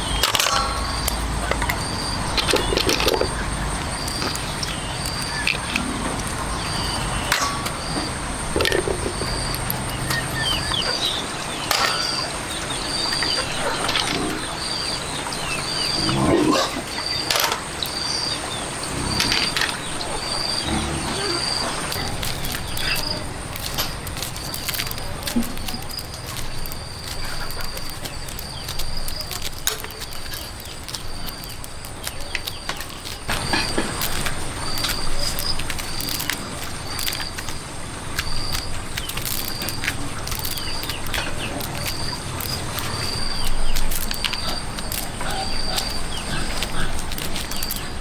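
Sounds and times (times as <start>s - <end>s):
knocks and rustling: 0.0s - 10.7s.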